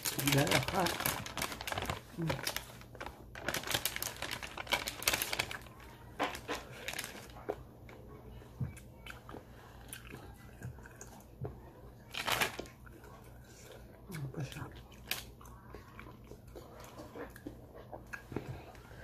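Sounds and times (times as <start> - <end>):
paper bag crinkling: 0.0 - 7.3, 12.2 - 12.7.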